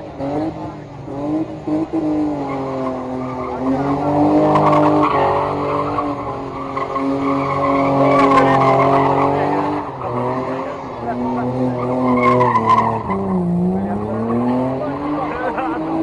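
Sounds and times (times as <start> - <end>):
car engine at high revs: 0.0 - 16.0
tyres squealing and skidding: 1.2 - 16.0.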